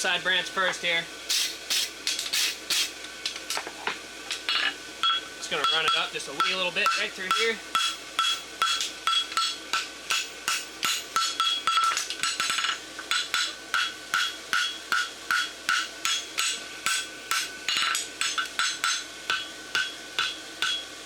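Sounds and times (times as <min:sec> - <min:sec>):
hammer striking steel on anvil: 0:05.6 - 0:20.9.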